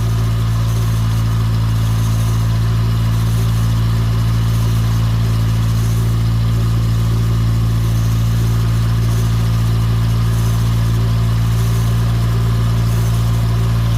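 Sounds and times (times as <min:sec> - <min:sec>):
car engine idling: 0:00.0 - 0:13.9.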